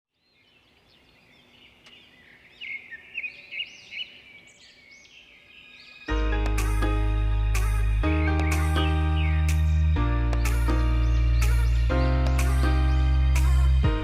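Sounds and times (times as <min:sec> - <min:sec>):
songbirds chirping: 0:00.1 - 0:14.0
music: 0:06.1 - 0:14.0.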